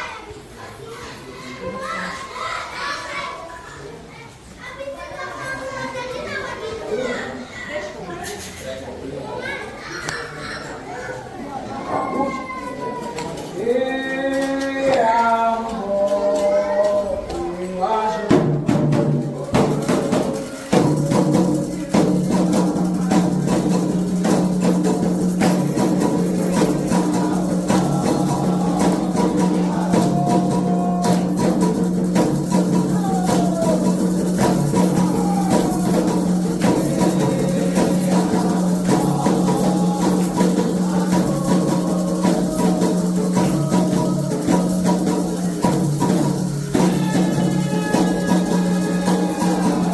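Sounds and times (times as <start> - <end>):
person singing: 13.6 - 18.5, 20.7 - 49.9
drums: 14.3 - 49.9
bell-like percussion: 18.7 - 49.9
rattle: 19.5 - 49.9.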